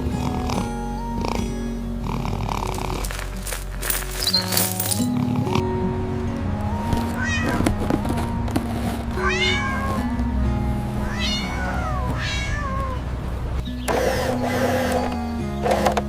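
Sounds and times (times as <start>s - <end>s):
background music with held notes: 0.0s - 16.0s
cat meowing: 7.2s - 7.8s, 9.2s - 10.2s, 11.0s - 13.1s.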